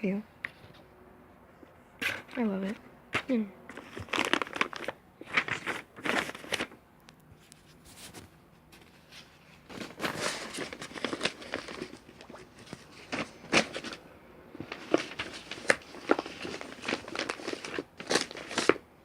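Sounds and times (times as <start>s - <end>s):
packaging rustling and crackling: 3.7s - 6.8s, 9.1s - 14.0s, 14.6s - 18.8s.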